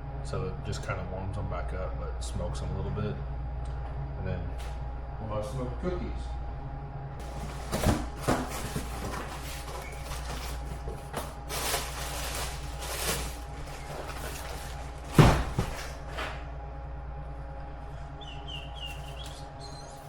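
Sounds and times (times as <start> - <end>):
steady machine hum: 0.0 - 20.0
kitchen knocks and clatters: 7.2 - 16.4.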